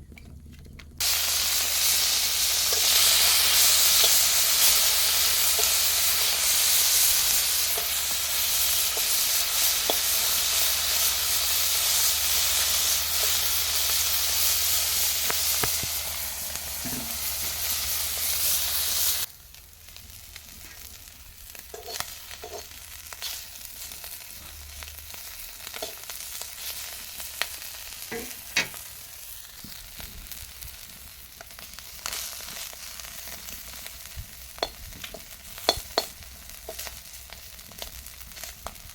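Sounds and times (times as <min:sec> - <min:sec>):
fish sizzling in hot oil: 0:01.0 - 0:38.9
stirring clicks in pan: 0:34.6 - 0:36.9.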